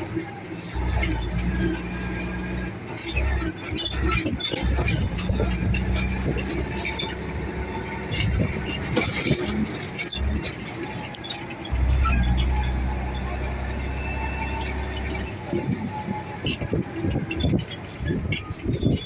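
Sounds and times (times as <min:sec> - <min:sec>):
clicks and rattles: 0:00.0 - 0:13.4
truck engine running: 0:00.0 - 0:19.0.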